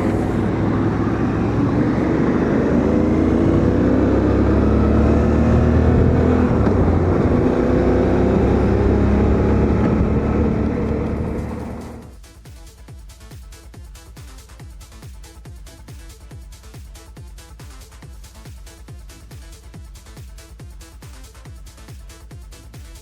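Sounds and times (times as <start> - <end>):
wind rush: 0.0 - 12.1
motorcycle engine running: 0.0 - 12.2.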